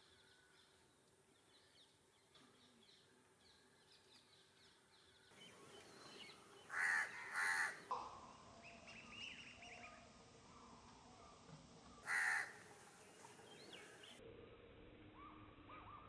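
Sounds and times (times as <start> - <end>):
crow cawing loudly: 6.7 - 7.9, 12.0 - 12.6.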